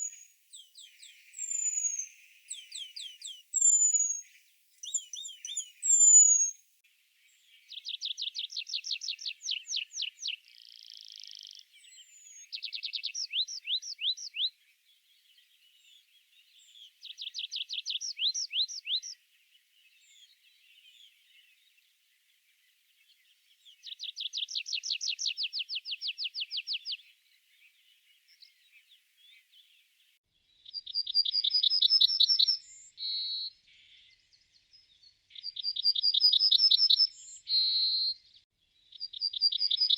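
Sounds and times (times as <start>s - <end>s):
songbird trilling: 0.0s - 6.6s, 7.8s - 14.5s, 17.1s - 19.2s, 30.7s - 33.5s, 35.4s - 38.2s, 38.9s - 39.9s.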